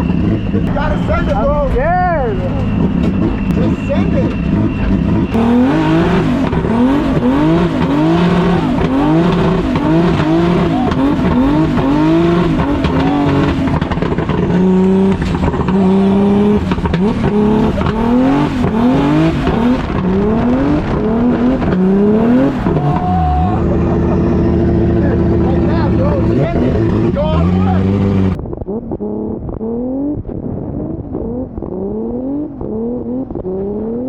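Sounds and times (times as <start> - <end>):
tyre squeal: 0.0 - 20.7
car engine revving: 0.0 - 34.0.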